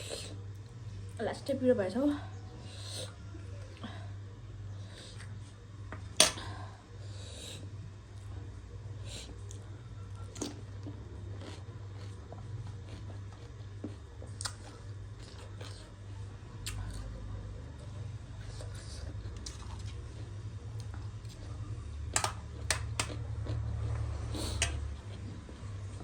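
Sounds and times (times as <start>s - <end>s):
steady low hum: 0.0s - 26.0s
chewing crunchy snack: 9.1s - 17.4s, 18.3s - 26.0s.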